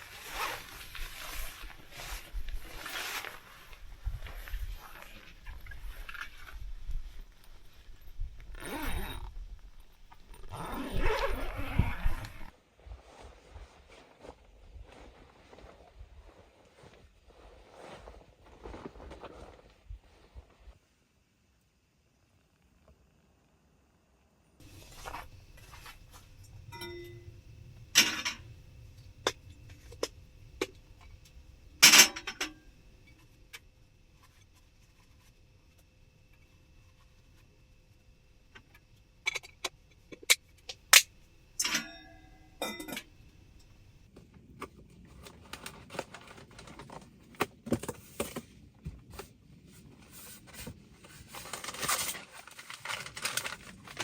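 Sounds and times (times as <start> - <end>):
rustling: 0.0 - 20.8, 24.6 - 31.7, 49.8 - 54.0.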